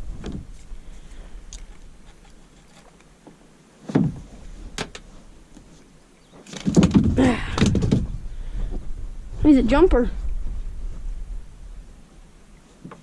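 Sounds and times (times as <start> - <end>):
thumps on plastic kayak hull: 3.9 - 4.9.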